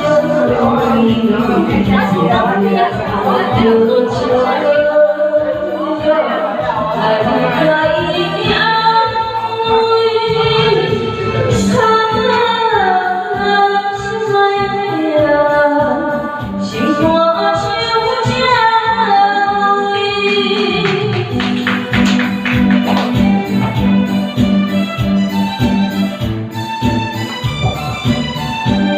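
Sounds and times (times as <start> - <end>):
woman singing: 0.0 - 21.6
instrumental backing: 0.0 - 28.9.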